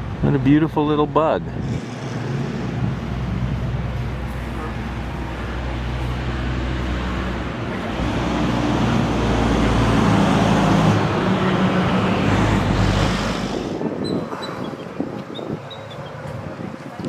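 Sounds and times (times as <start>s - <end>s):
car engine droning: 1.5s - 14.6s.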